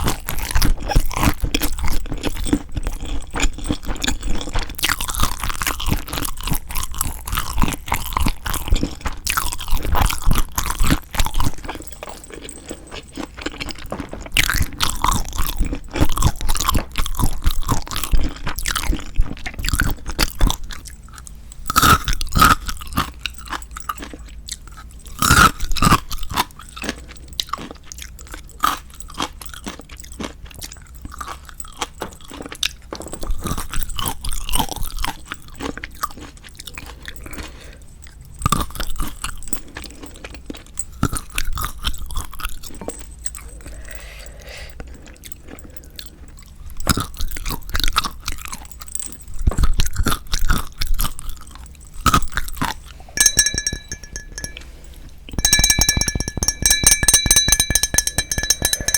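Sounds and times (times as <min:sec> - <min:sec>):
person chewing and crunching shrimp: 0:00.0 - 0:53.0.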